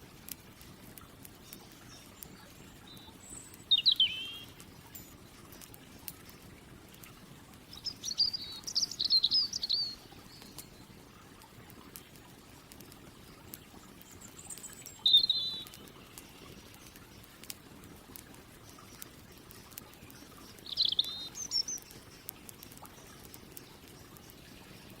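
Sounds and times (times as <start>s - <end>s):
campfire crackles: 0.0s - 25.0s
birds twittering: 1.4s - 6.1s, 7.7s - 10.9s, 13.6s - 17.3s, 18.6s - 25.0s
faint high bird chirps: 1.5s - 5.2s, 7.7s - 10.8s, 14.0s - 16.6s, 20.1s - 22.2s.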